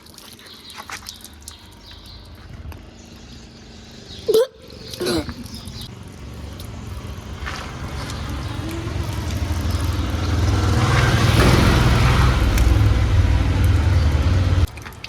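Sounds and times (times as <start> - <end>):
heavy diesel engine running: 5.9 - 14.7.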